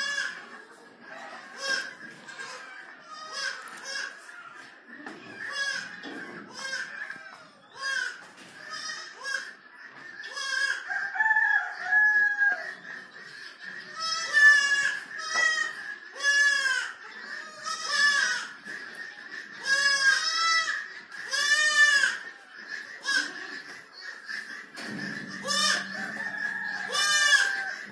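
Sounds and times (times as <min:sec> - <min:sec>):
goats bleating: 0:01.4 - 0:09.6, 0:10.2 - 0:10.8, 0:13.9 - 0:18.6, 0:19.4 - 0:27.9.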